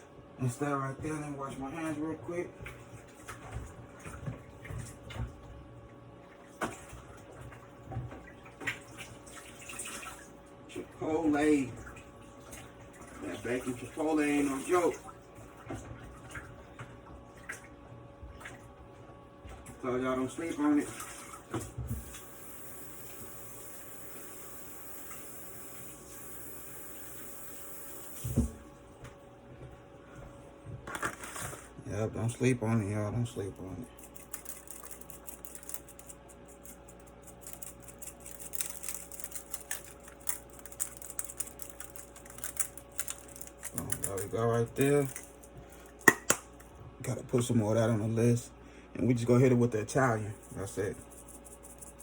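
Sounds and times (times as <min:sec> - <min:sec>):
tap running: 0:21.5 - 0:31.4, 0:33.9 - 0:47.5
tap running into a sink: 0:24.9 - 0:29.1
hands washing at sink: 0:33.3 - 0:47.8.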